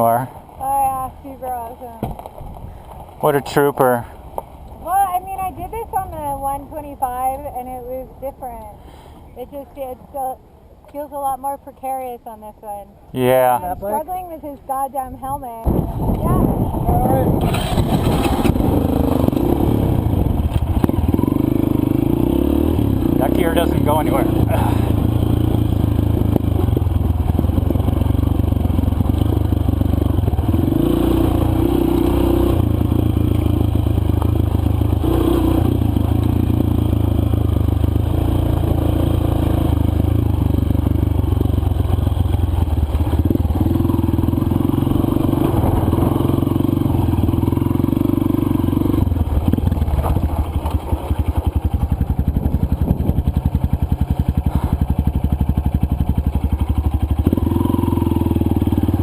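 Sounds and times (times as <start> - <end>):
dirt bike engine running: 15.2 - 59.0.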